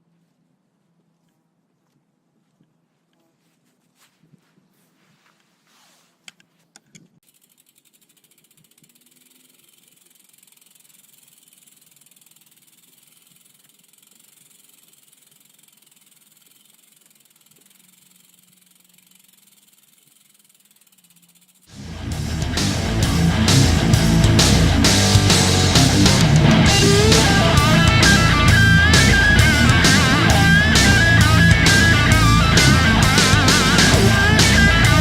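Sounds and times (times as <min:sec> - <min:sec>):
bicycle freewheel ticking: 0:07.2 - 0:35.0.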